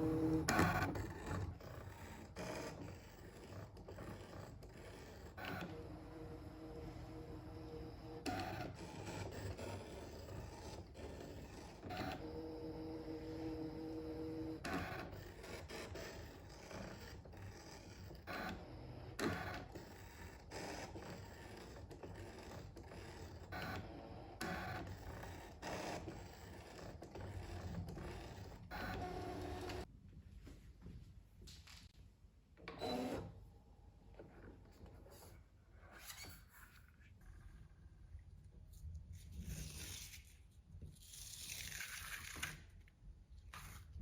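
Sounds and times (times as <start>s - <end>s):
cutting machine motors whirring: 0.0s - 29.9s, 32.7s - 33.4s.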